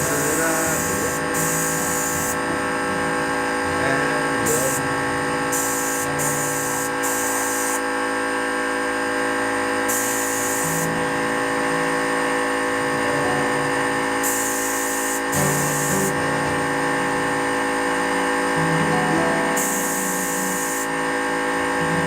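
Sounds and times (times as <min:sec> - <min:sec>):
spray hissing: 0:00.0 - 0:02.4, 0:04.4 - 0:04.9, 0:05.5 - 0:07.9, 0:09.9 - 0:11.0, 0:14.2 - 0:16.2, 0:19.5 - 0:21.0
electric paint sprayer whining: 0:00.0 - 0:22.0.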